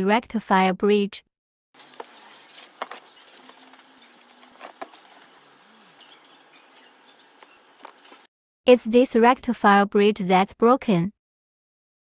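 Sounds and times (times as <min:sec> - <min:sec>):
small metal parts and tools clinking: 0:01.8 - 0:08.2.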